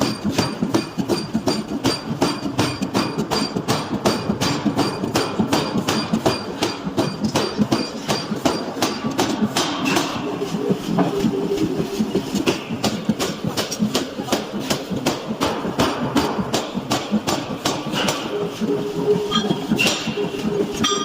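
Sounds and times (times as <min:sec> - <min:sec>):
power hammer striking metal: 0:00.0 - 0:11.1, 0:14.8 - 0:18.3, 0:19.3 - 0:21.0.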